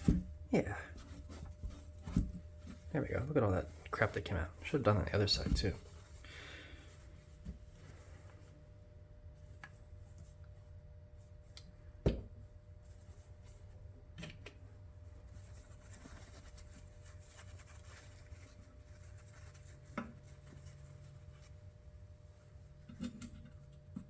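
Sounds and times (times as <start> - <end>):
soft rubbing of small parts: 0.0 - 8.8, 15.0 - 24.0
low steady hum: 0.0 - 24.0.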